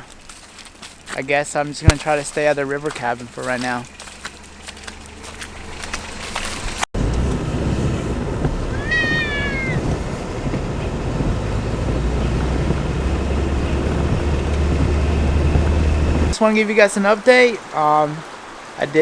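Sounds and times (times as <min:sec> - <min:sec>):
low rumble and hiss: 0:07.0 - 0:16.4
pet whining: 0:08.4 - 0:11.6.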